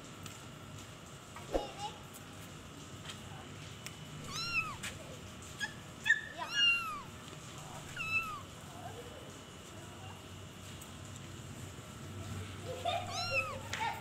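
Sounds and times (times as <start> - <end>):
cat chirp: 4.2 - 4.8, 5.6 - 7.1, 7.9 - 8.4, 13.0 - 13.6
cat meowing: 4.2 - 4.8, 6.3 - 7.1, 7.9 - 8.4, 13.0 - 13.6.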